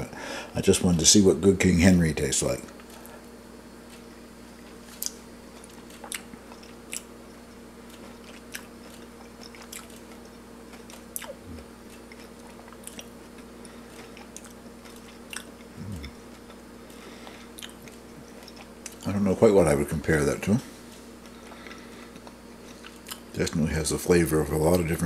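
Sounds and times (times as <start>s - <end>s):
steady low hum: 0.0s - 25.0s
person chewing: 3.8s - 19.1s, 21.2s - 23.4s.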